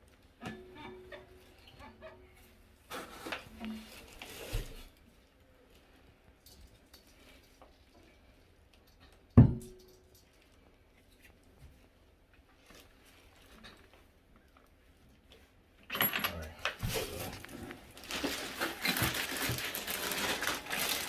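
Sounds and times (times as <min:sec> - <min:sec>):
rustling handling noise: 0:10.3 - 0:21.0.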